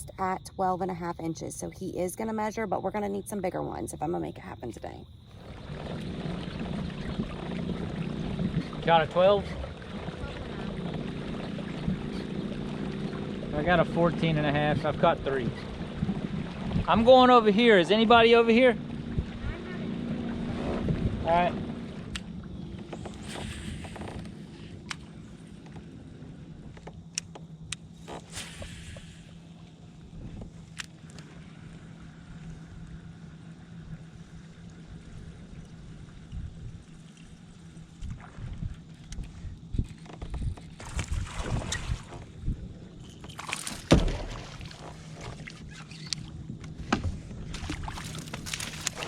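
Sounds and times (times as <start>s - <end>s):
steady low hum: 0.0s - 49.0s
kayak hull creaking and knocking: 5.2s - 28.4s, 29.7s - 33.4s, 34.9s - 49.0s
knocks against kayak hull: 43.6s - 45.5s, 46.7s - 48.8s
loud thump: 43.8s - 44.4s.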